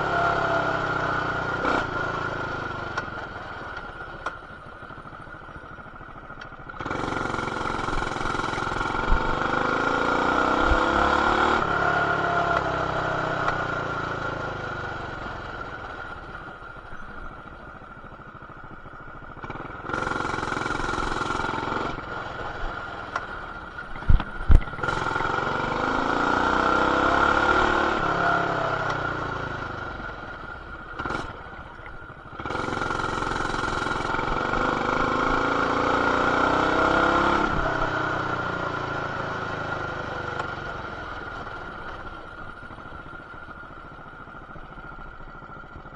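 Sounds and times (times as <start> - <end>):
mini bike engine revving: 0.0 - 4.3, 6.6 - 16.4, 19.2 - 45.9.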